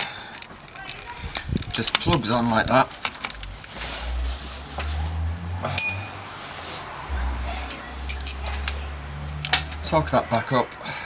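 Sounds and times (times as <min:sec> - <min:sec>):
metal tools clinking: 0:00.0 - 0:03.8, 0:05.8 - 0:06.2, 0:07.7 - 0:08.8
low rumble: 0:06.8 - 0:09.9.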